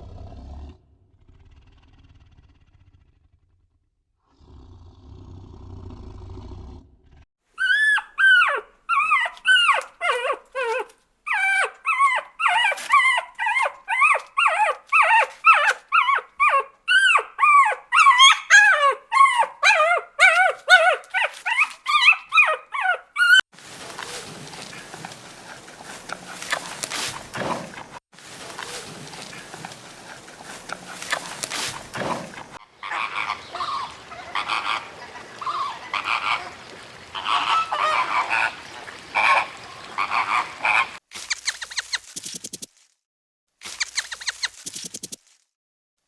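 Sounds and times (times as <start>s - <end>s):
animal yelping cries: 7.6s - 23.4s, 32.8s - 41.0s.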